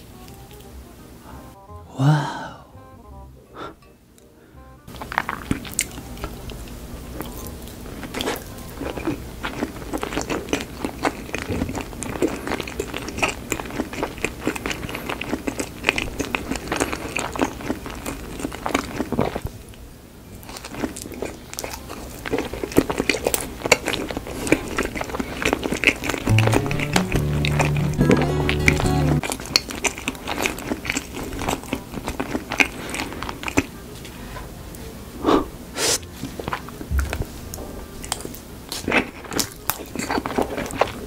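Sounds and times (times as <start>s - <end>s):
close chewing mouth sounds: 4.9s - 19.8s, 20.4s - 33.8s, 38.0s - 41.0s.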